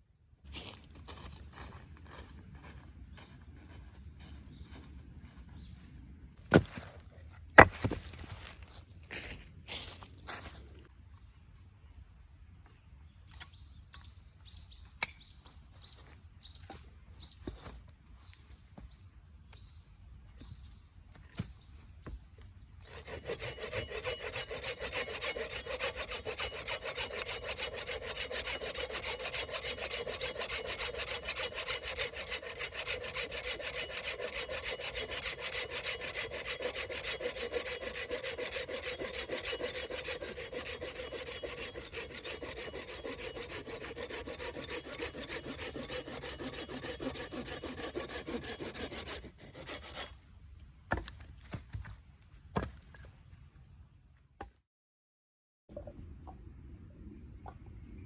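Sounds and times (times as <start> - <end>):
saw cutting through wood: 22.8 - 50.2.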